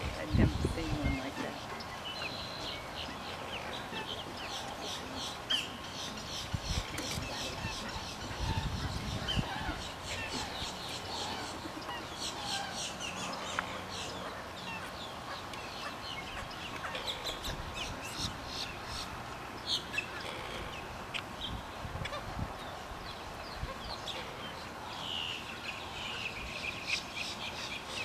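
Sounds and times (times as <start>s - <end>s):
wetland birds calling: 0.0s - 28.0s
long drawn-out bird call: 1.4s - 20.9s.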